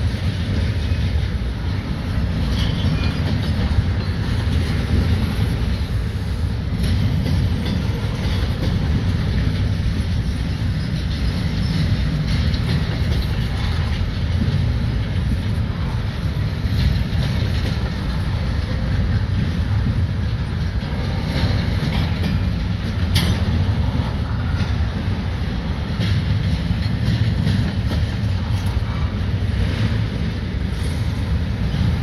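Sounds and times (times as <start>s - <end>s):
freight train rolling past: 0.0s - 32.0s
wheel clicks on rail: 6.6s - 32.0s.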